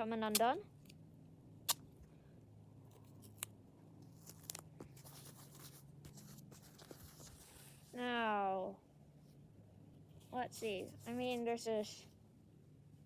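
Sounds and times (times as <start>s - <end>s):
low steady hum: 0.0s - 13.0s
scissors snipping tape: 0.3s - 0.6s, 1.7s - 1.9s.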